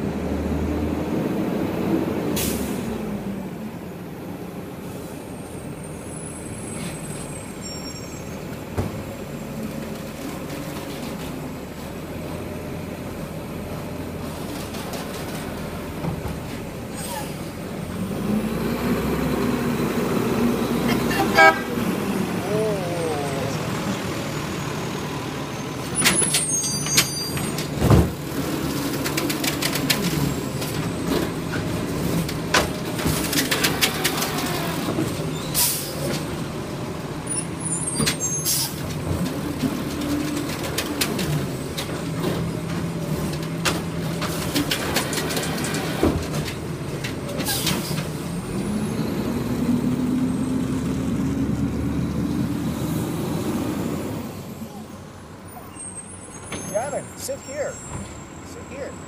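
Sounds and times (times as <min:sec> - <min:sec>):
diesel engine running: 0:09.8 - 0:26.6.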